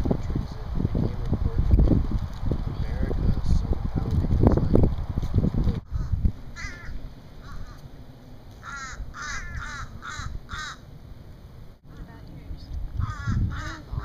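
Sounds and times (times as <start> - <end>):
wind rumble on microphone: 0.0 - 8.0, 8.6 - 14.0
bird harsh cawing: 5.9 - 7.8, 8.6 - 10.9, 13.0 - 14.0.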